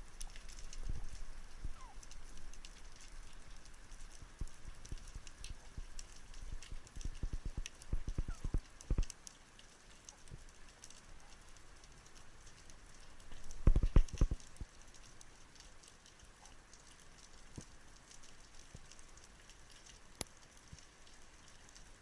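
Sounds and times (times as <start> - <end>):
faint steady crackle: 0.0 - 22.0.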